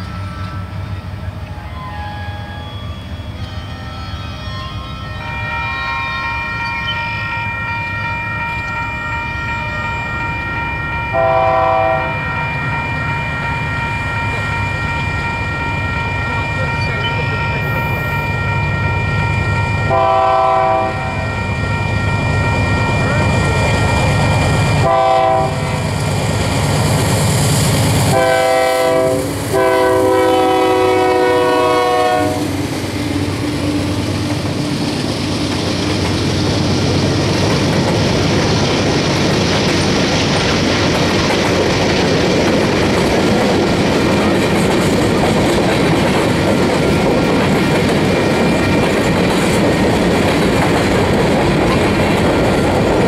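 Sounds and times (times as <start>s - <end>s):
train cars rolling by: 0.0s - 53.0s
locomotive horn blasts: 3.4s - 23.1s, 24.8s - 25.8s, 28.1s - 32.6s
steel wheels clacking on rails: 32.3s - 53.0s.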